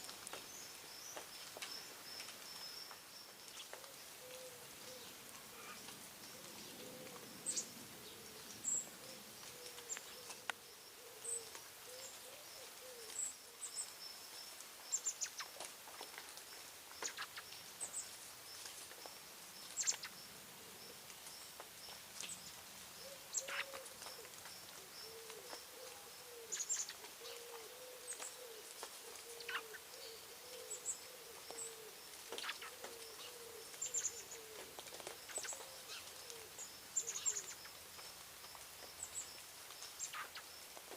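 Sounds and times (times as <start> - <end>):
birds chirping: 0.3 - 40.6.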